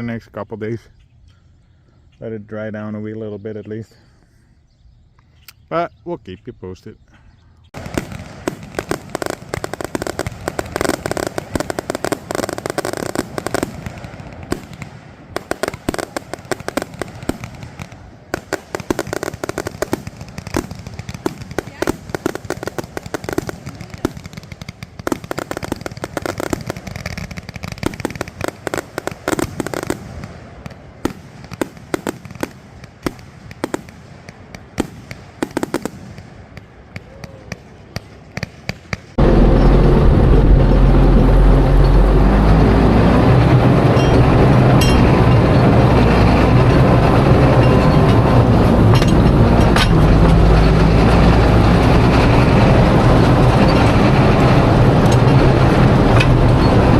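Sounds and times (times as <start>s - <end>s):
fireworks popping and banging: 7.7s - 39.7s, 43.0s - 56.9s
loud engine droning: 39.2s - 56.9s.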